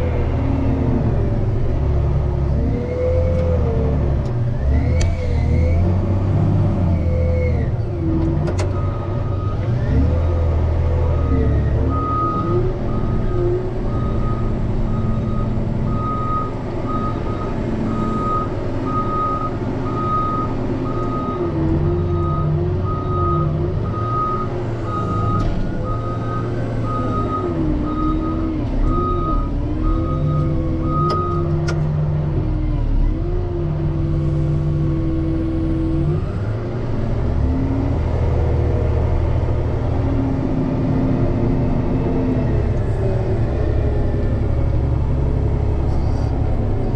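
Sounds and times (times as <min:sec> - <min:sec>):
diesel engine working under load: 0:00.0 - 0:46.9
reversing alarm beeping: 0:22.1 - 0:31.5.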